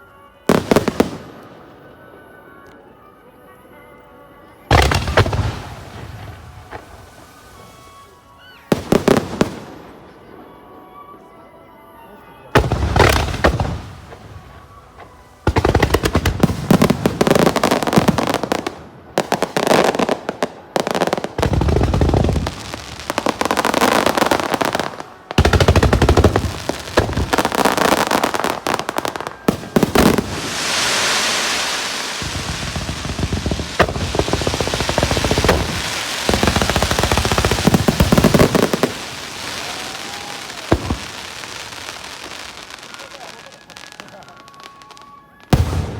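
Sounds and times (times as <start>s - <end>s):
firework booms: 4.7s - 7.8s, 12.6s - 43.3s, 45.5s - 45.9s
rapid firework bursts and crackling: 12.6s - 44.6s.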